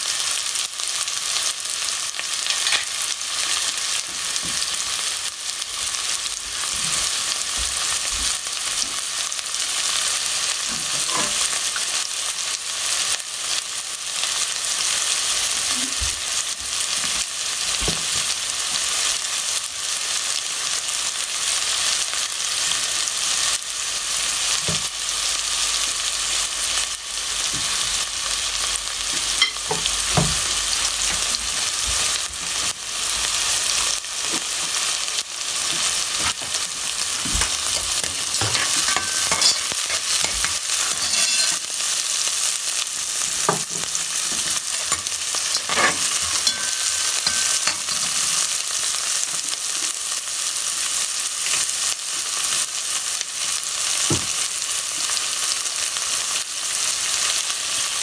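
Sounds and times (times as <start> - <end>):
food sizzling in hot oil: 0.0 - 58.0
spoon stirring and knocking pan: 29.1 - 32.7, 35.6 - 41.7, 43.4 - 48.5.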